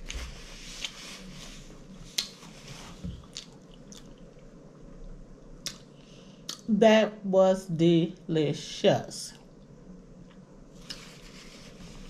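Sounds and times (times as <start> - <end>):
soft chewing: 0.0 - 6.6, 9.4 - 11.8
lip smacks: 2.1 - 2.4, 3.2 - 4.5, 5.6 - 5.9.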